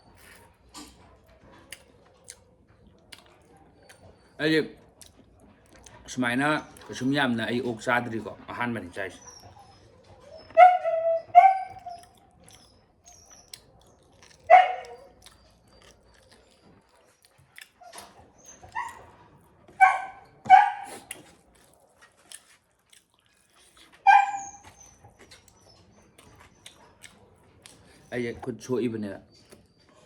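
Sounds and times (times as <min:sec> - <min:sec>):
dog barking: 0:10.5 - 0:12.2, 0:13.6 - 0:16.3, 0:18.7 - 0:19.1, 0:19.7 - 0:21.1, 0:24.0 - 0:24.8.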